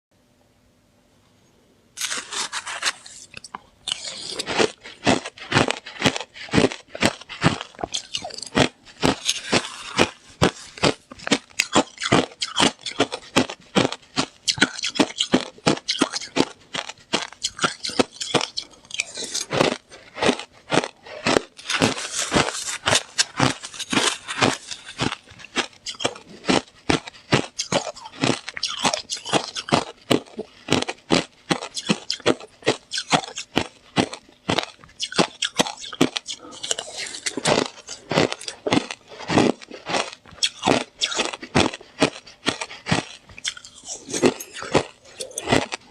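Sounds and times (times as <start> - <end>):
ice being chewed: 2.0 - 45.9.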